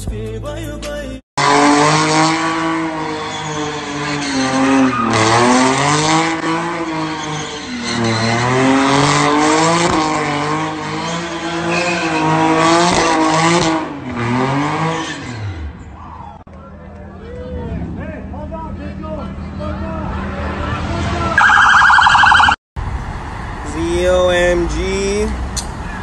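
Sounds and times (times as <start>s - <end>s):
car engine revving hard: 1.4s - 15.8s
tyres squealing on pavement: 2.6s - 9.4s, 10.8s - 12.6s.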